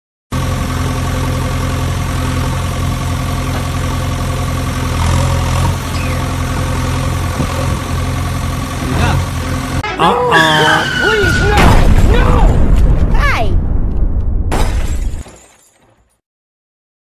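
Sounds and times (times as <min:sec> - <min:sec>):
tractor engine idling: 0:00.3 - 0:10.1.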